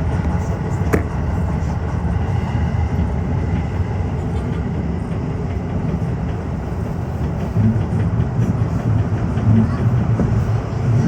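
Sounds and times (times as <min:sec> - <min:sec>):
subway train wheels rumbling on rails: 0:00.0 - 0:11.0.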